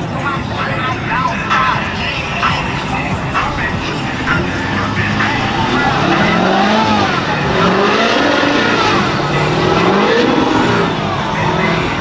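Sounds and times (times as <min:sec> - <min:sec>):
engine revving hard: 0:01.1 - 0:12.0.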